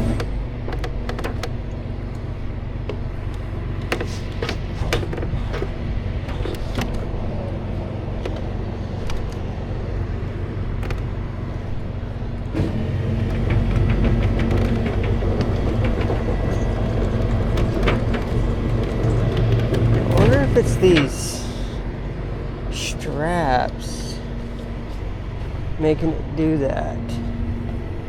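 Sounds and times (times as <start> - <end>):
steady droning tone: 0.0 - 28.0
truck engine idling: 0.0 - 28.0
metal clicks and knocks: 0.1 - 2.2, 8.2 - 9.6, 10.7 - 11.2, 13.2 - 21.1.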